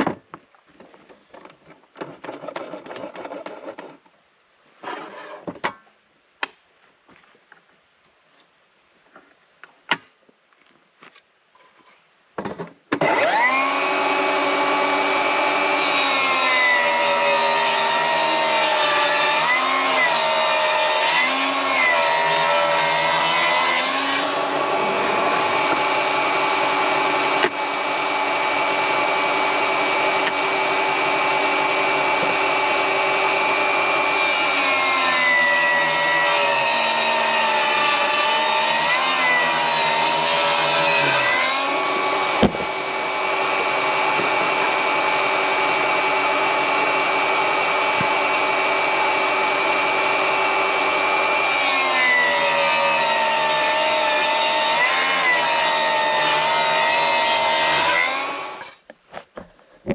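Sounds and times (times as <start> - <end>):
table saw ripping wood: 13.0 - 58.9.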